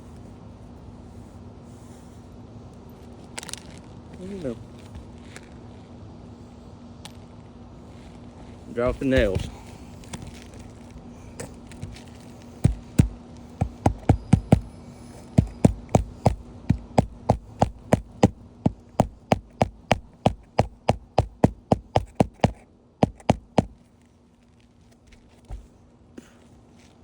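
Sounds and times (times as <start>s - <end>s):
hammer striking nails: 12.6s - 23.8s.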